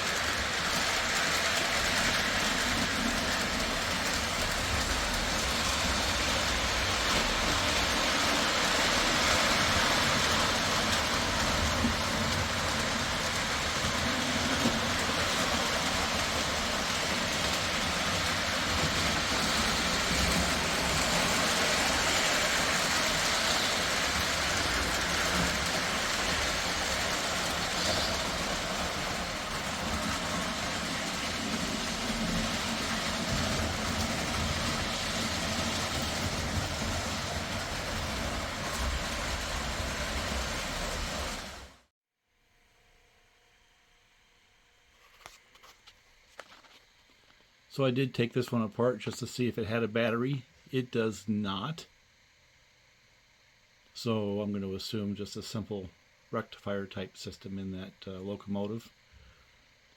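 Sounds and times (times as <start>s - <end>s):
metal wheels rolling on rail: 0.0s - 41.8s
model train motors whirring: 0.0s - 41.8s.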